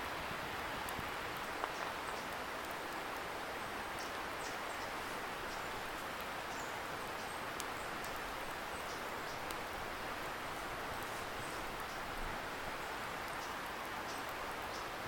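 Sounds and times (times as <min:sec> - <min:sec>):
bonfire crackling and popping: 0:00.8 - 0:12.6.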